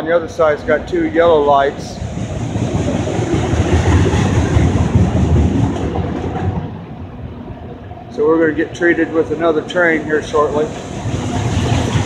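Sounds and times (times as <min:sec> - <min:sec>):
freight train wheels on rail: 0:00.0 - 0:12.0.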